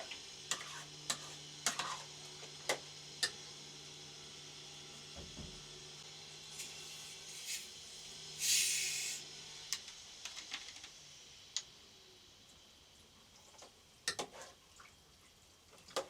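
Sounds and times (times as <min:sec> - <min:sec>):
short loud hiss: 0:08.4 - 0:09.2.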